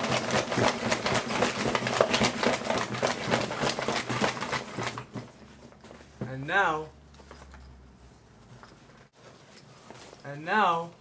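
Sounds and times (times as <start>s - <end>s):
bag contents rattling and clattering: 0.0s - 6.2s.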